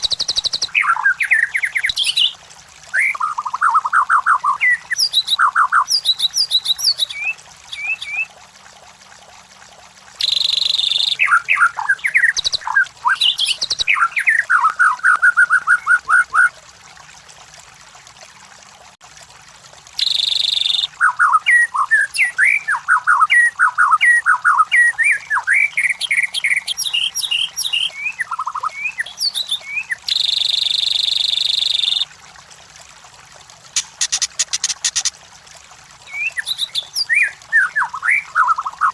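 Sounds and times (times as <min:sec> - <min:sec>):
bird singing whistled phrases: 0:00.0 - 0:08.3, 0:10.2 - 0:16.5, 0:20.0 - 0:32.1, 0:36.0 - 0:38.9.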